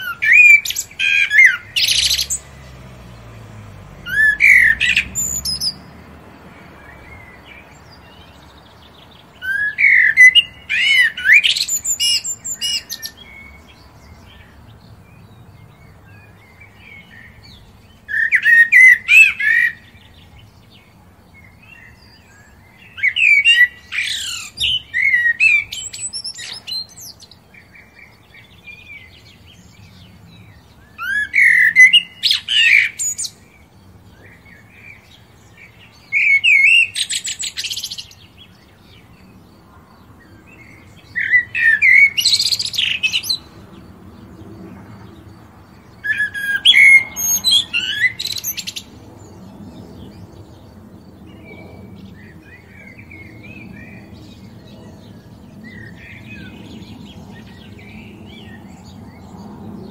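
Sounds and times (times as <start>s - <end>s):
bird warbling song: 0.0s - 59.9s
quiet bird twittering: 0.0s - 59.9s.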